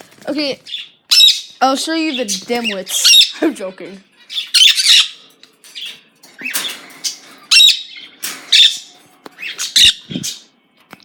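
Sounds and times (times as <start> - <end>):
birds squawking: 0.4 - 10.5.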